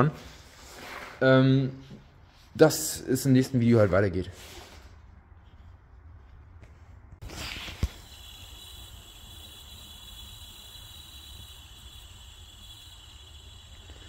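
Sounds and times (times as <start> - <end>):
bearing grinding whine: 7.5 - 14.0.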